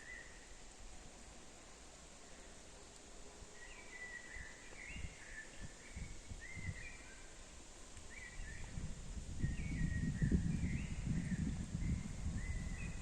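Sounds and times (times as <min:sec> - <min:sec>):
birdsong: 0:00.0 - 0:00.6, 0:03.5 - 0:13.0.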